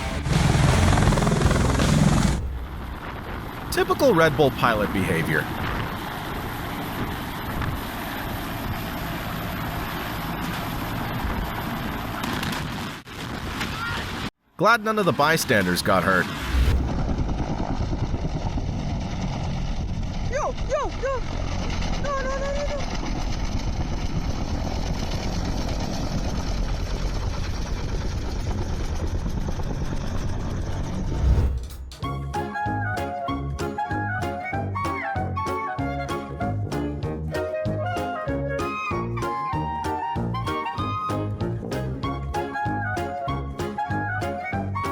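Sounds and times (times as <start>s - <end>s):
helicopter engine and rotor: 0.0s - 12.9s, 16.4s - 22.0s, 22.8s - 31.3s.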